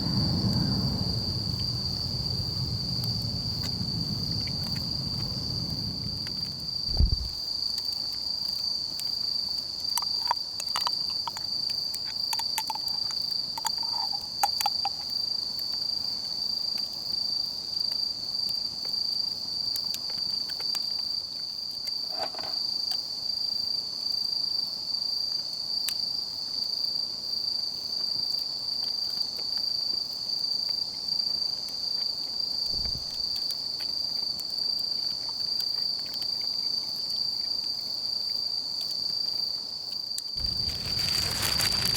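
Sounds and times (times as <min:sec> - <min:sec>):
low thump: 0:00.0 - 0:07.4, 0:32.7 - 0:33.2
insects chirring: 0:00.0 - 0:16.1, 0:40.4 - 0:41.9.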